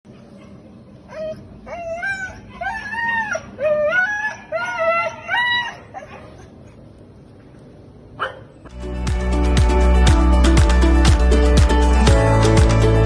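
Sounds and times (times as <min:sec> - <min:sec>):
dog howling and whining: 0:01.0 - 0:06.6.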